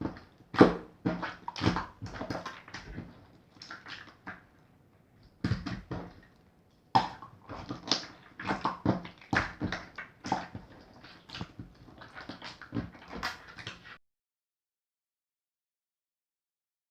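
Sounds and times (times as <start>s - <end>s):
slime squelching by hand: 0.0s - 4.6s, 5.3s - 14.0s.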